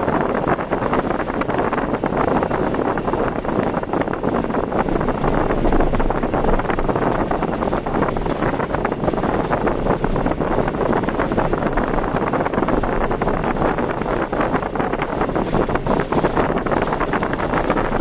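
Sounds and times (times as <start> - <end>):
rain pattering on car: 0.0 - 18.0
road noise: 0.0 - 18.0
wind: 0.0 - 18.0.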